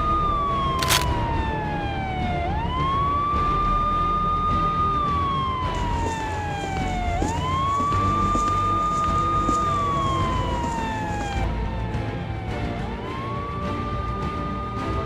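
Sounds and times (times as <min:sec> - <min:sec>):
police siren wailing: 0:00.0 - 0:15.0.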